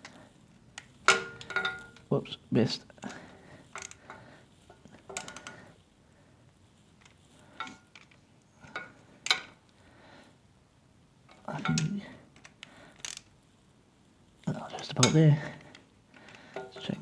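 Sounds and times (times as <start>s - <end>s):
ratchet and socket clicking: 12.4s - 13.3s.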